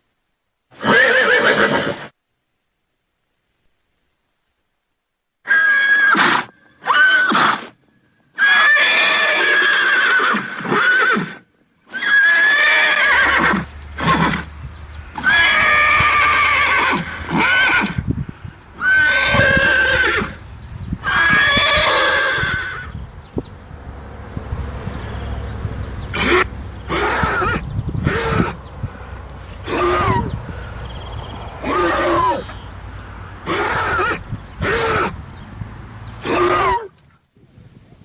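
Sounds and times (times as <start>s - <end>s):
horse whinnying: 0.7s - 2.1s, 5.5s - 7.8s, 8.4s - 14.5s, 15.1s - 18.0s, 18.8s - 20.4s, 21.0s - 23.0s, 26.1s - 28.6s, 29.5s - 30.5s, 31.6s - 32.6s, 33.4s - 35.2s, 36.2s - 36.9s.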